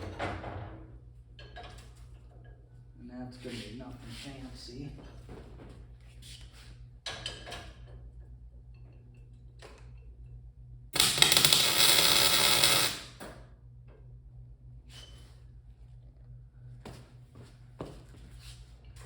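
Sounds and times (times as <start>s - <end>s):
welding arc crackling: 11.0s - 13.1s.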